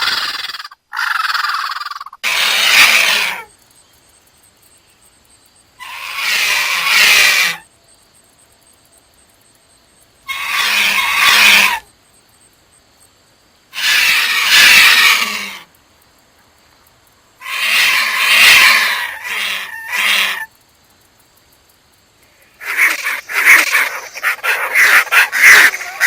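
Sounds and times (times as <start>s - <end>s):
bird screeching call: 0.0s - 3.5s, 5.8s - 7.7s, 10.3s - 11.9s, 13.7s - 15.7s, 17.4s - 20.5s, 22.6s - 26.0s.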